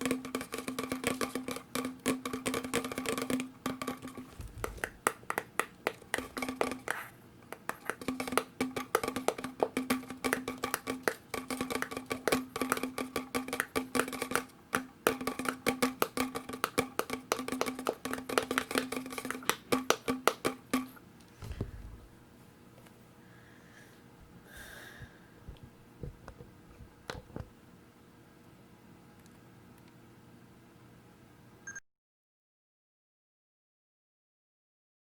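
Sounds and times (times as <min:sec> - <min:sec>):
fast tapping on plastic bottles: 0:00.0 - 0:21.8.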